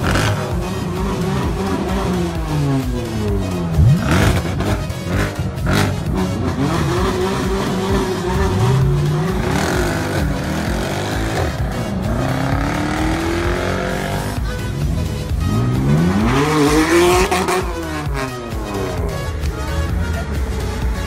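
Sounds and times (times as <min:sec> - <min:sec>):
sports car engine revving: 0:00.0 - 0:19.8.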